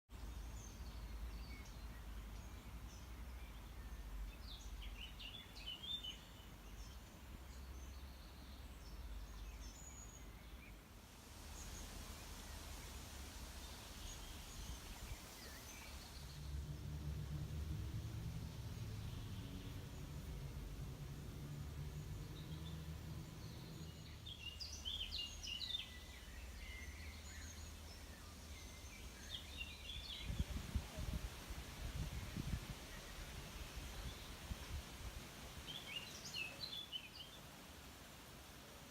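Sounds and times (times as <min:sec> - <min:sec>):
songbirds chirping: 0:00.1 - 0:38.9
low steady rumble: 0:11.0 - 0:24.8.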